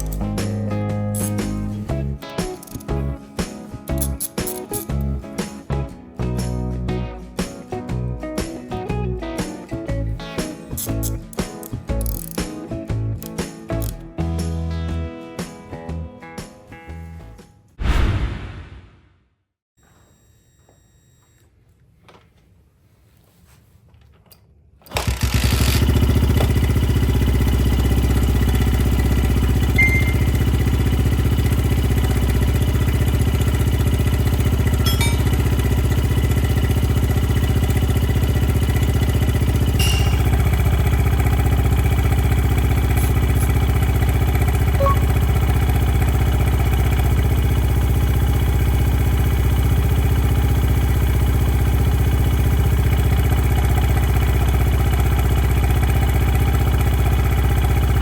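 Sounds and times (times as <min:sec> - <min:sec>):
small engine idling: 0:03.9 - 0:05.2, 0:10.8 - 0:12.4, 0:24.9 - 0:58.0.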